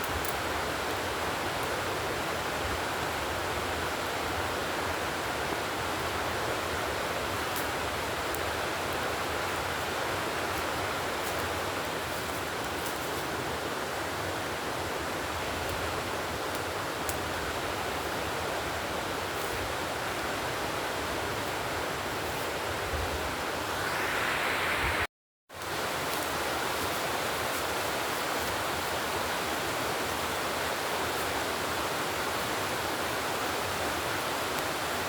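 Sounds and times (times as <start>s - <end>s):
steady rushing noise: 23.5s - 25.1s.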